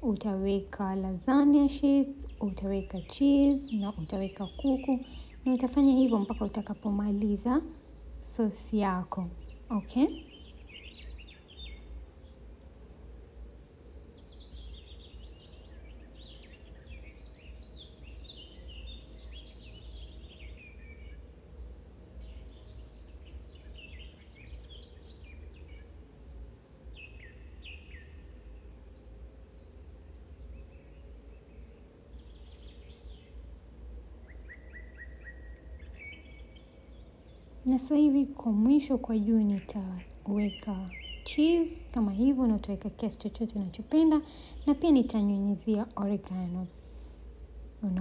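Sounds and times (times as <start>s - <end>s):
birds chirping: 0.0s - 48.0s
steady low hum: 0.0s - 48.0s.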